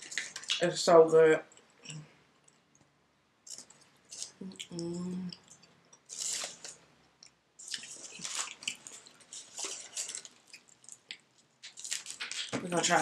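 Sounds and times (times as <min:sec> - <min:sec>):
wet chewing: 0:03.5 - 0:12.5.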